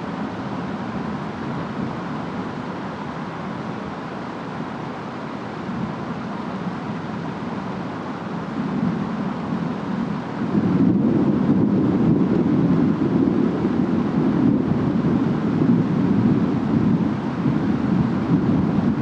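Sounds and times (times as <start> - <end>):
rain hiss: 0.0 - 19.0
wind rumble: 5.6 - 19.0.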